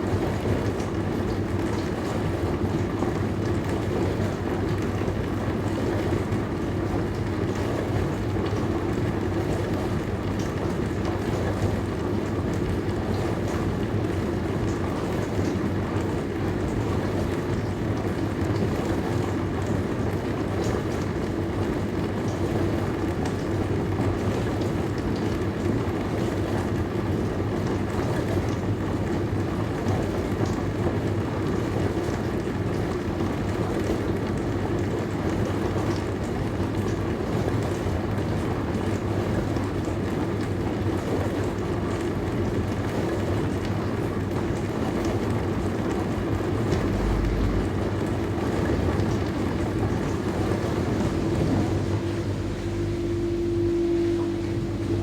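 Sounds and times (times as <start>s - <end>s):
dishwasher pump motor hum: 0.0s - 55.0s
water spraying inside dishwasher: 45.2s - 55.0s.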